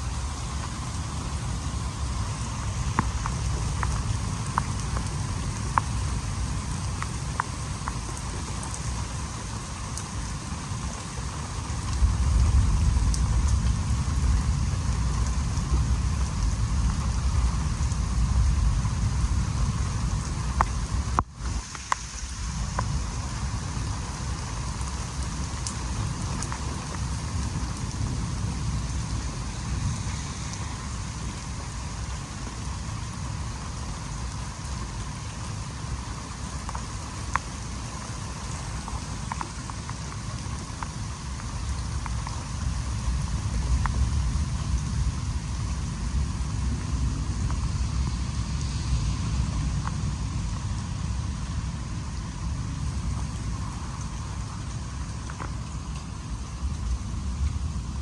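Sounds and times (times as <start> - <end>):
steady rain falling: 0.0 - 58.0
low rumble: 11.7 - 21.2.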